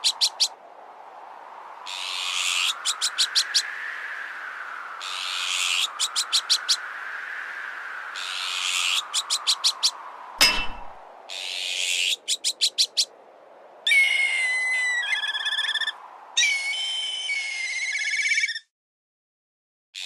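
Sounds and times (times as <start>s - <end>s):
kite whistling trill calls: 4.9s - 10.0s, 13.8s - 18.7s
sharp metallic clank: 10.4s - 11.0s.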